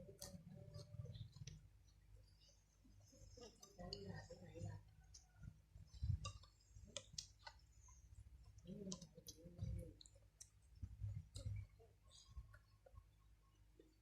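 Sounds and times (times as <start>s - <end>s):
wet mouth chewing sounds: 5.0s - 13.1s.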